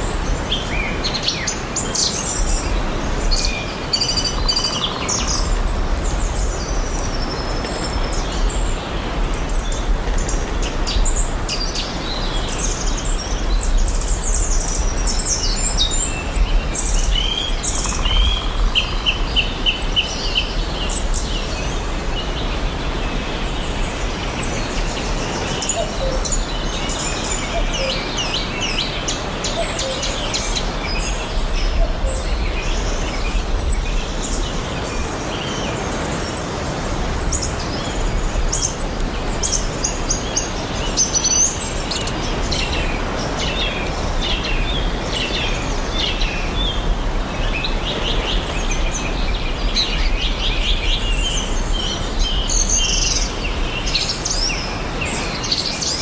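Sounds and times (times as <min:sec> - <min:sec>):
rushing background hiss: 0:00.0 - 0:56.0
songbirds chirping and twittering: 0:00.0 - 0:56.0.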